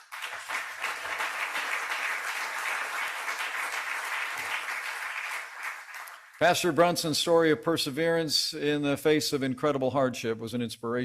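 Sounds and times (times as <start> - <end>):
large audience applauding: 0.0 - 6.5.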